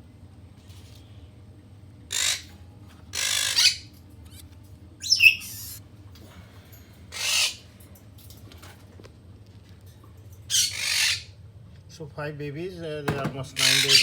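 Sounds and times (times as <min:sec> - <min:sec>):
parrot squawking: 0:02.1 - 0:02.5, 0:03.1 - 0:05.8, 0:07.1 - 0:07.7, 0:10.5 - 0:11.3, 0:13.6 - 0:14.0.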